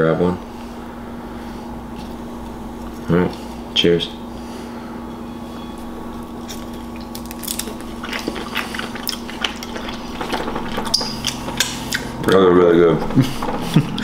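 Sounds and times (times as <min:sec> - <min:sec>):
air conditioning hum: 0:00.0 - 0:14.0
people chewing: 0:05.8 - 0:12.4, 0:13.1 - 0:14.0.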